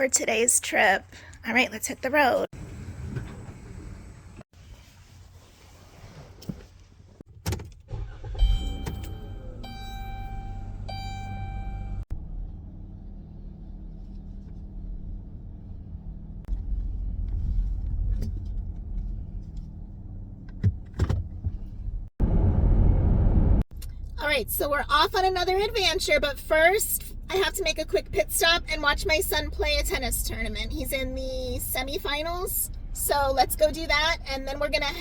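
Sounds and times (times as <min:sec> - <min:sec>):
road noise: 0:02.1 - 0:06.0, 0:07.2 - 0:35.0
van engine running: 0:07.9 - 0:35.0
multi-tone chime: 0:08.4 - 0:12.0.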